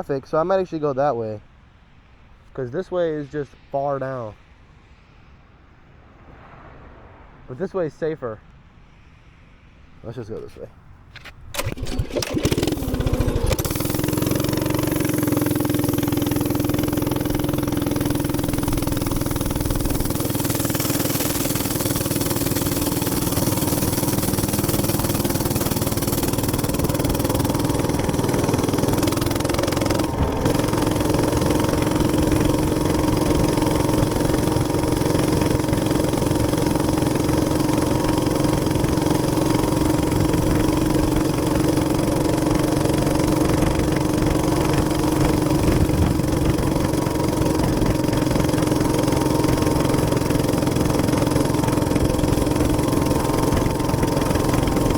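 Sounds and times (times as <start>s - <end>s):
rushing wind noise: 5.8s - 7.9s, 43.4s - 48.1s
minibike engine droning: 11.2s - 54.9s.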